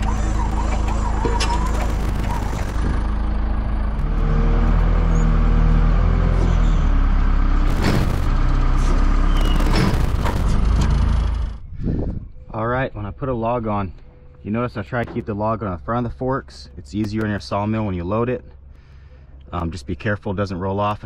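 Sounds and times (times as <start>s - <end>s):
tractor engine under load: 0.0s - 12.0s.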